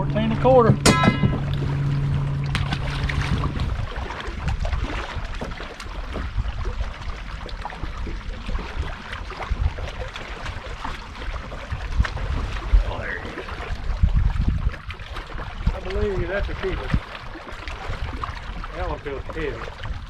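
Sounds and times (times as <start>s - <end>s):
steady low hum: 0.0s - 7.2s
water: 0.0s - 20.0s
wind buffeting microphone: 0.0s - 20.0s.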